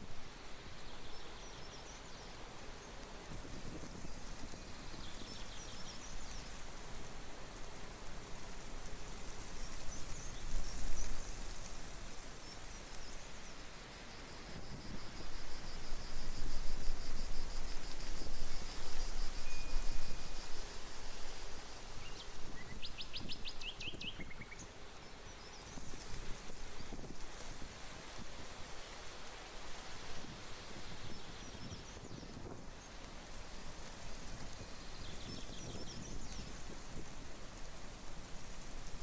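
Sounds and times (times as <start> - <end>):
steady noisy hiss: 0.0 - 39.0
bird chirping: 22.0 - 25.8.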